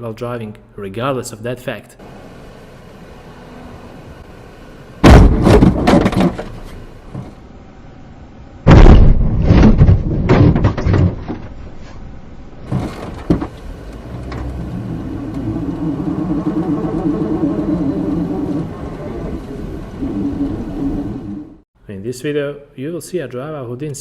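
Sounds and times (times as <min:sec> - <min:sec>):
debris clattering: 0:05.0 - 0:07.4, 0:08.7 - 0:11.6, 0:12.6 - 0:20.2
loud collision impacts: 0:05.0 - 0:07.4, 0:08.6 - 0:11.6
steady hum: 0:12.2 - 0:21.6
small knocks: 0:12.7 - 0:15.6.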